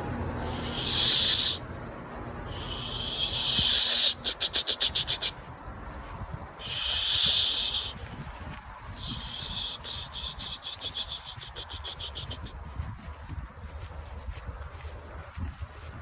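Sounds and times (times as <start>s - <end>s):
alligator hissing: 0.4s - 1.6s, 2.5s - 5.4s, 6.6s - 8.0s, 9.0s - 12.3s.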